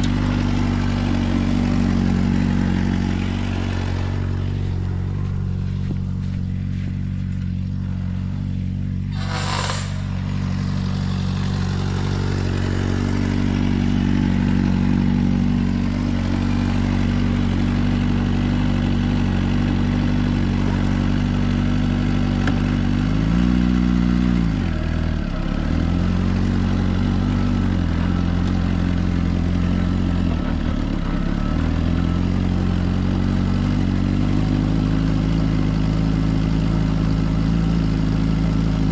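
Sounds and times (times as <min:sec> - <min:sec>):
motorcycle engine cruising: 0:00.0 - 0:38.9
rush of noise: 0:09.1 - 0:13.8.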